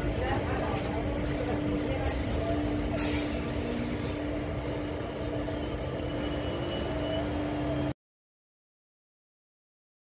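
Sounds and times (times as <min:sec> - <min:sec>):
train wheels rumbling on rail: 0:00.0 - 0:07.9.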